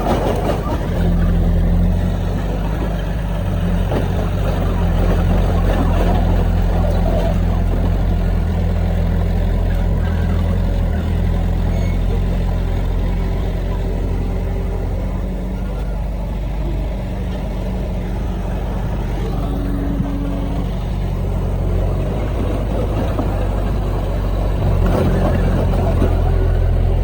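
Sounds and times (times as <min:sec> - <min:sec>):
heavy diesel engine droning: 0:00.0 - 0:27.0.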